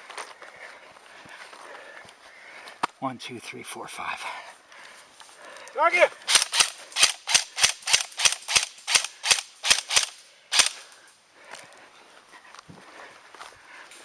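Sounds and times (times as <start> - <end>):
airsoft gun shots: 6.3 - 10.8.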